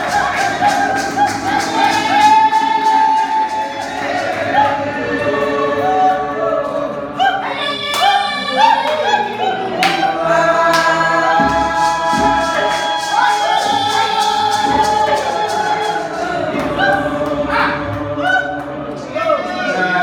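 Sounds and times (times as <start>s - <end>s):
group singing gospel song: 0.0s - 20.0s
steady beat of sharp strikes: 9.9s - 18.2s.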